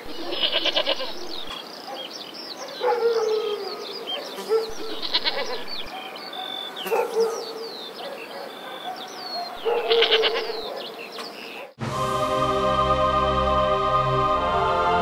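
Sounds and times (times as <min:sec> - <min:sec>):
songbirds chirping: 0:00.0 - 0:11.8
goats bleating: 0:00.1 - 0:01.5, 0:04.9 - 0:05.7, 0:09.8 - 0:10.6.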